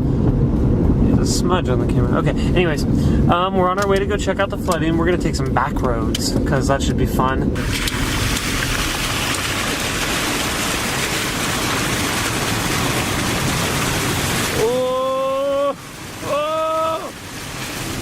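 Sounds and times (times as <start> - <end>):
rain hissing: 7.6 - 18.0
tyre noise on wet road: 7.6 - 18.0.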